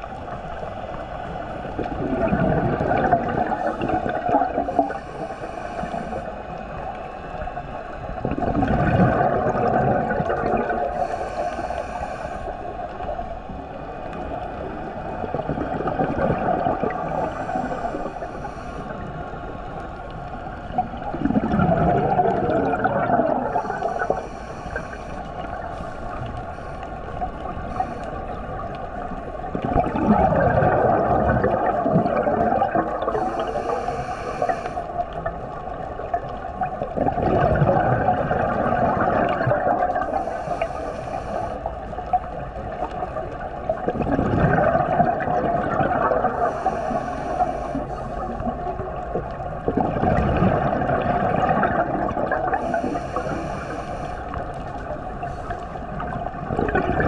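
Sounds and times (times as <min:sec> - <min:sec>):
exhaust bubbles gurgling: 0:01.6 - 0:06.9, 0:08.1 - 0:11.1, 0:14.2 - 0:26.3, 0:27.1 - 0:33.8, 0:34.4 - 0:40.7, 0:41.6 - 0:57.0
regulator inhale hiss: 0:03.5 - 0:08.0, 0:10.8 - 0:14.6, 0:16.9 - 0:20.6, 0:23.4 - 0:29.4, 0:33.0 - 0:35.7, 0:40.0 - 0:42.1, 0:46.2 - 0:49.0, 0:52.4 - 0:56.1.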